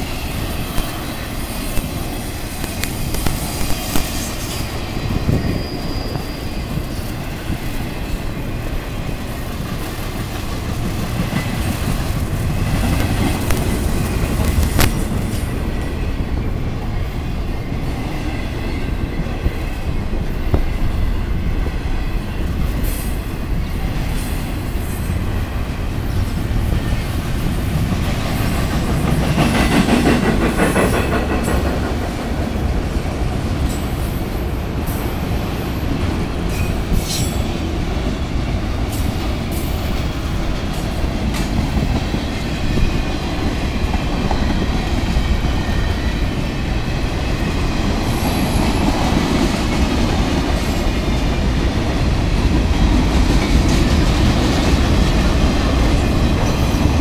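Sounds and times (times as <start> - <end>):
clickety-clack over rail joints: 0.0 - 57.0
train wheels rumbling on rail: 0.0 - 57.0
faint wheel squeal: 4.5 - 7.1.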